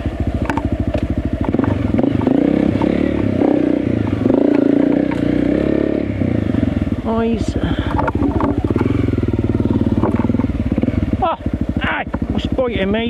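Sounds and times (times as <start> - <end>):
motorcycle engine revving: 0.0 - 13.0
clattering knocks from motorcycle: 0.4 - 3.0, 7.8 - 8.9, 10.0 - 10.6.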